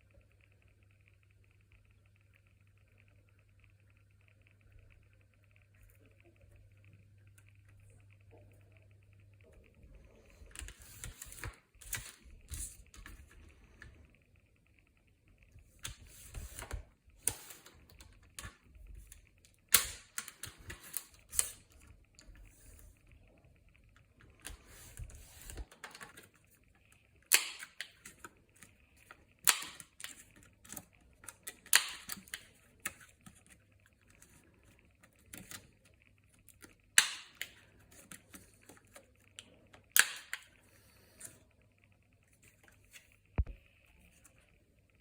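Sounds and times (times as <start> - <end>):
sharp clicks of craft objects: 27.3 - 28.0.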